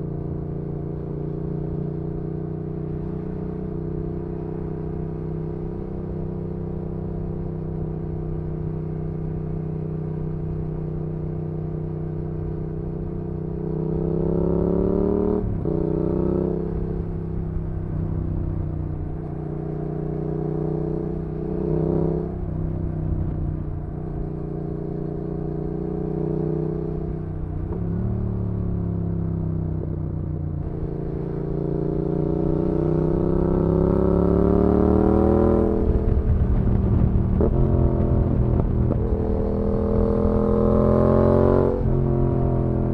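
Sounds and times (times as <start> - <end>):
motorcycle engine revving: 13.0 - 23.6, 24.2 - 42.9.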